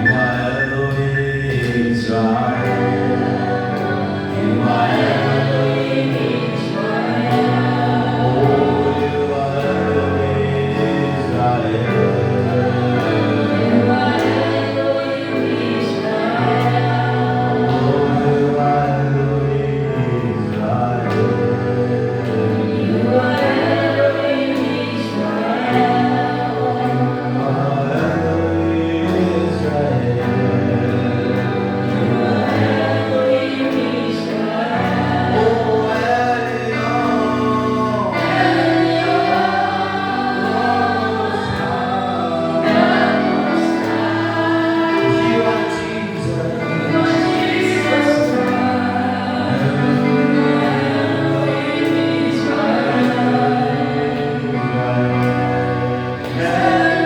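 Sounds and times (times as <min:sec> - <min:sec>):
choir singing gospel: 0:00.0 - 0:57.0
sustained instrumental backing: 0:00.0 - 0:57.0.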